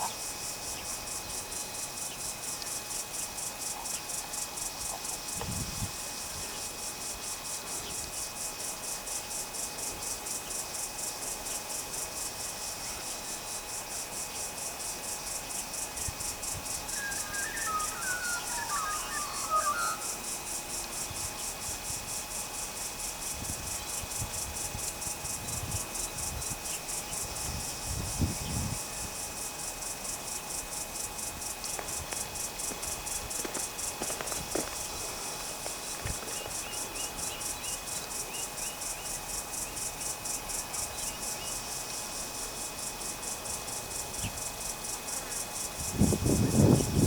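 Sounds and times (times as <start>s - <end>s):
insects chirping: 0.0s - 47.0s
bird call: 16.9s - 20.2s.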